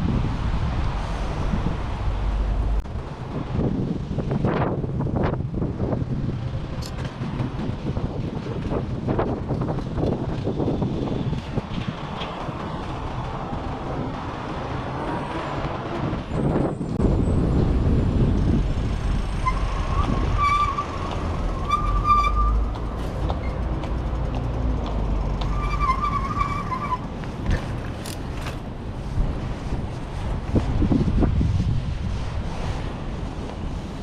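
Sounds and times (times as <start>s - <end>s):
wind buffeting microphone: 0.0s - 34.0s
short high squeals: 19.4s - 22.7s, 25.5s - 27.0s.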